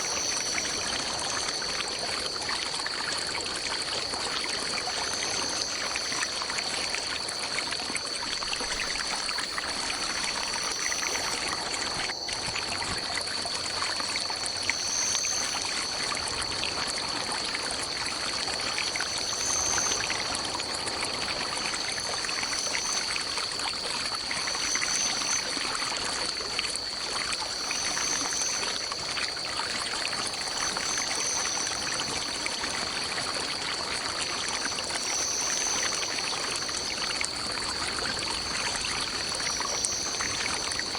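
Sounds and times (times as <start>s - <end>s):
high-pitched insect drone: 0.0s - 40.9s
stream flowing: 0.0s - 40.9s.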